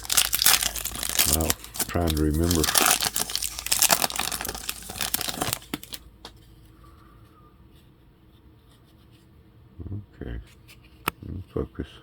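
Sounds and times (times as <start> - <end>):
plastic wrapper crinkling: 0.0 - 6.0.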